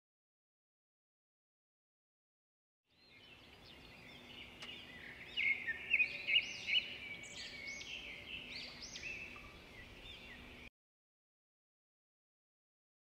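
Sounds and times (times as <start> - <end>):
birds chirping: 2.9 - 10.7.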